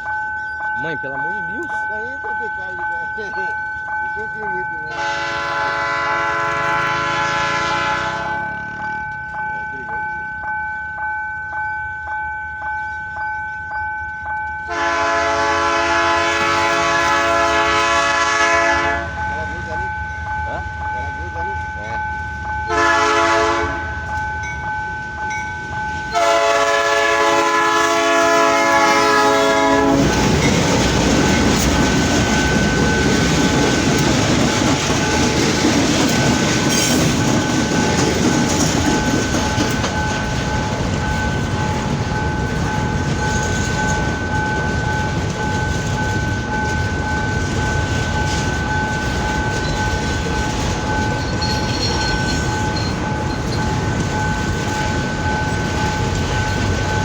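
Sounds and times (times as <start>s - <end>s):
train wheels rumbling on rails: 0.0s - 57.0s
train air horn blast: 4.9s - 8.6s, 14.7s - 19.2s, 22.7s - 24.0s, 26.1s - 30.3s.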